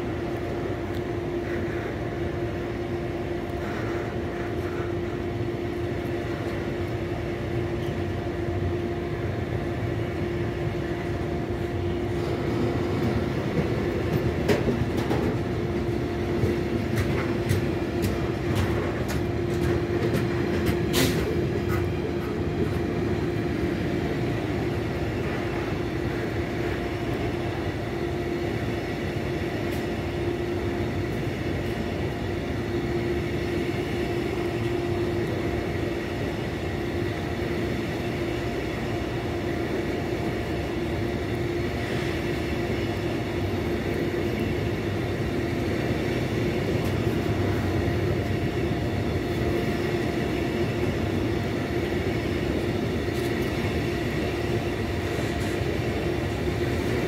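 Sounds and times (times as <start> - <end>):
train running on track: 0.0 - 57.0
wheels clicking on rails: 12.2 - 23.4.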